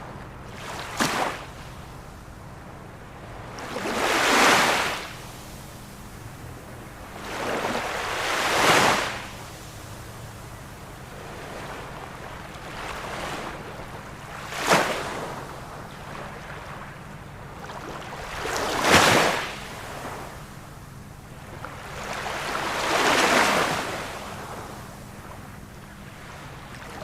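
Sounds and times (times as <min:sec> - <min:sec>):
ocean waves washing ashore: 0:00.0 - 0:27.0.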